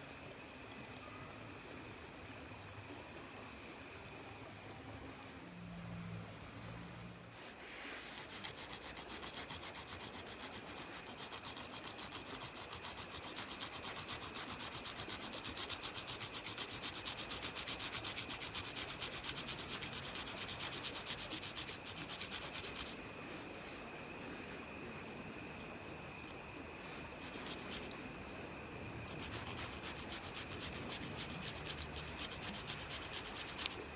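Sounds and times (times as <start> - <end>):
rapid scraping strokes: 7.3 - 24.6, 25.5 - 28.2, 28.9 - 33.9.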